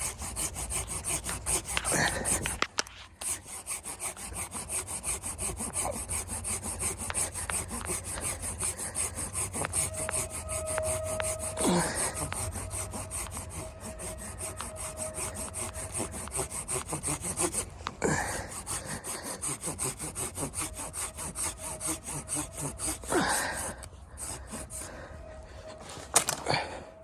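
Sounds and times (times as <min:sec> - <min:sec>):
hand saw cutting wood: 0:00.0 - 0:25.2.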